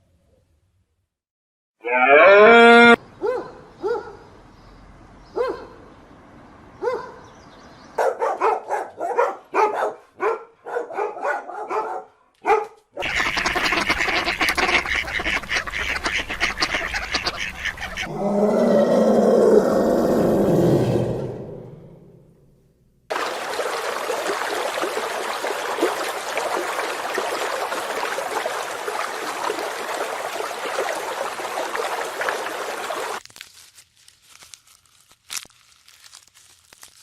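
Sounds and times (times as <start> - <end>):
chorus of animals calling: 1.8 - 3.0, 16.1 - 21.7
farm animal calls: 13.0 - 18.2.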